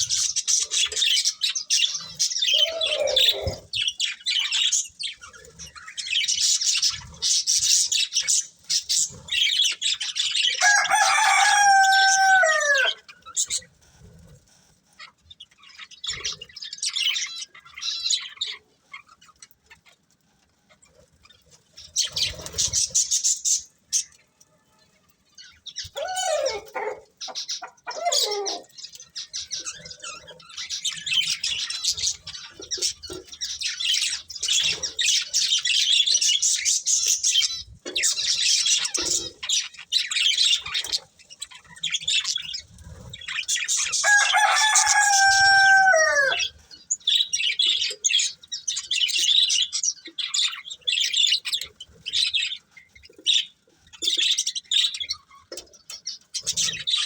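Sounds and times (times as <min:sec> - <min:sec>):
lower falling bird calls: 0:00.0 - 0:05.1, 0:09.6 - 0:13.6, 0:25.7 - 0:30.1, 0:43.2 - 0:47.6
budgerigars chattering: 0:00.0 - 0:13.7, 0:25.7 - 0:57.0.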